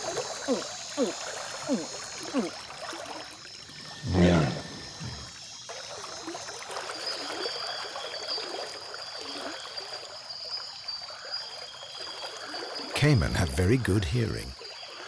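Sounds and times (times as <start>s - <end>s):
insects and frogs chorus: 0.0s - 15.0s
loud low grunting call: 4.0s - 5.3s.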